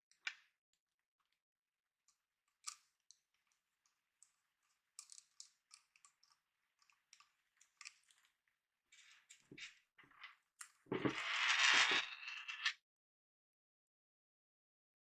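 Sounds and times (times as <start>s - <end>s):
small plastic and metal parts clicking: 2.5s - 8.4s.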